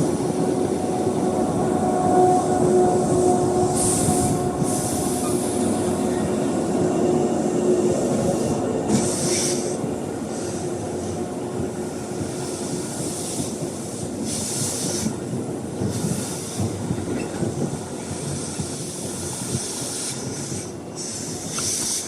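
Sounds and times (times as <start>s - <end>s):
train wheels rumbling on rails: 0.0s - 22.0s
brakes squealing and hissing: 8.1s - 9.8s.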